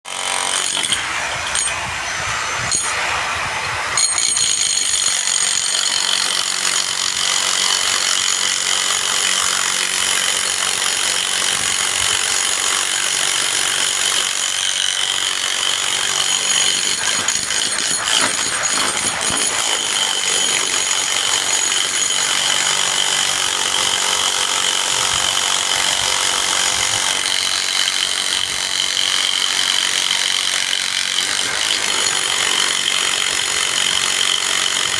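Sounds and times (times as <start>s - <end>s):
construction power tools: 0.0s - 34.9s
grinding noise: 0.1s - 6.2s, 15.8s - 22.8s.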